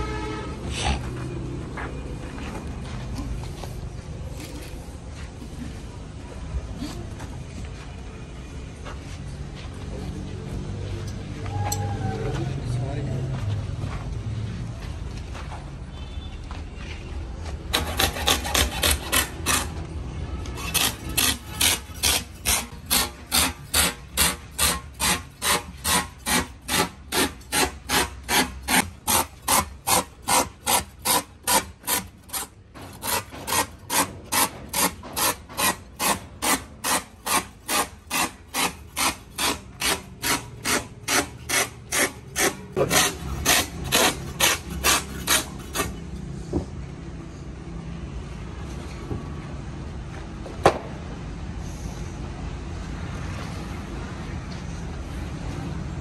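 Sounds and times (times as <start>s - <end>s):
hand tool scraping tyre rubber: 17.7s - 46.1s.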